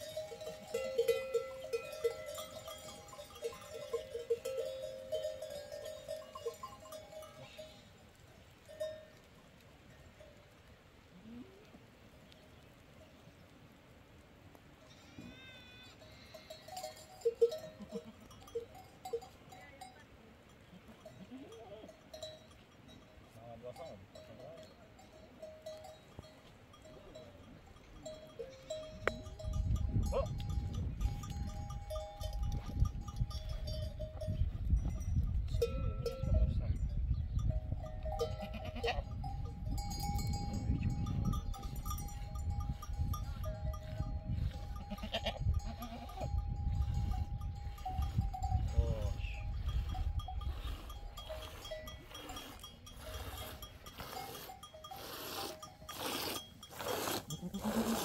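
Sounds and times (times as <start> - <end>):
bells clinking: 0.0 - 8.0, 16.0 - 20.0, 21.0 - 57.7
sheep and goats bleating: 14.8 - 18.6, 38.2 - 39.2, 40.2 - 47.1, 48.4 - 58.0.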